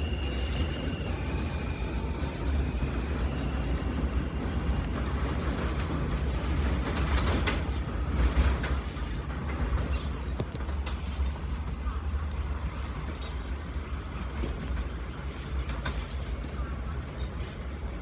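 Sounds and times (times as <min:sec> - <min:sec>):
high wheel squeal: 0:00.0 - 0:04.5
train rumbling on rails: 0:00.0 - 0:18.0.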